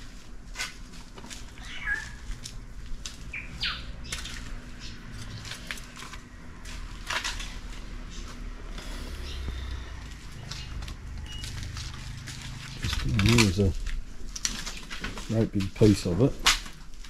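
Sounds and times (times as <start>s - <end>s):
low steady hum: 0.0s - 17.0s
bird chirps: 1.6s - 2.2s, 3.3s - 5.4s, 8.8s - 11.8s.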